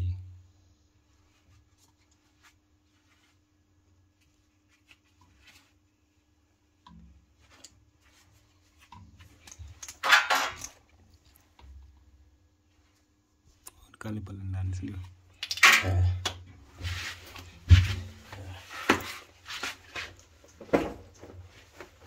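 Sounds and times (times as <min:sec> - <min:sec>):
parts rattling clatter: 0:09.5 - 0:10.8.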